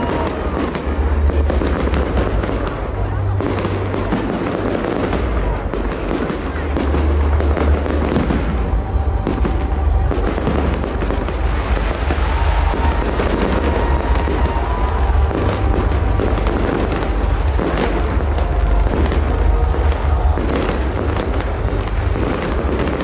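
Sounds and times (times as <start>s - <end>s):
fireworks crackle: 0.0s - 23.0s.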